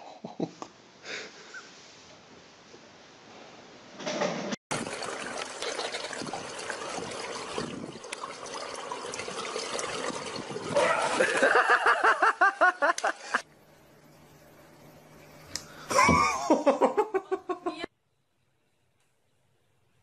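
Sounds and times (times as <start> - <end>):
pool water lapping and splashing: 4.7 - 15.9
person laughing: 11.0 - 13.4, 15.9 - 17.9.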